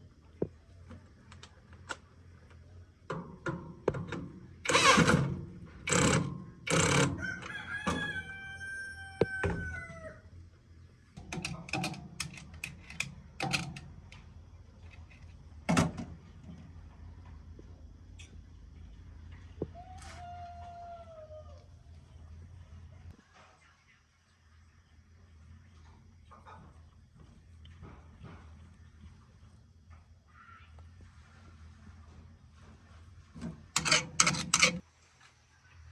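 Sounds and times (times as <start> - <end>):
rooster crowing: 6.8 - 10.3, 19.7 - 21.7.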